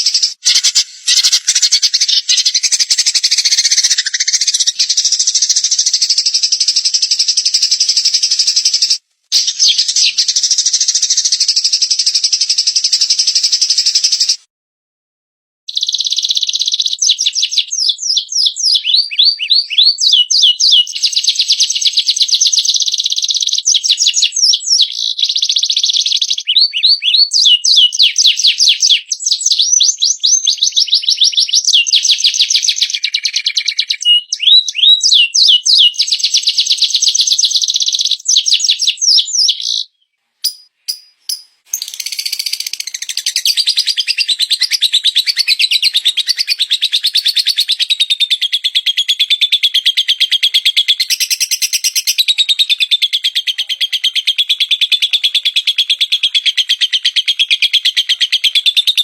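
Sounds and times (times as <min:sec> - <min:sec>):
songbird fast trilling: 0:00.0 - 0:11.7, 0:37.7 - 0:48.0.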